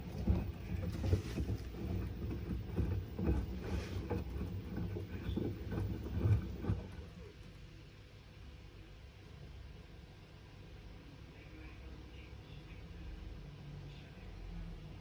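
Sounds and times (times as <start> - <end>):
laundry and water sloshing: 0.0 - 7.2
washing machine drum turning: 0.0 - 7.3.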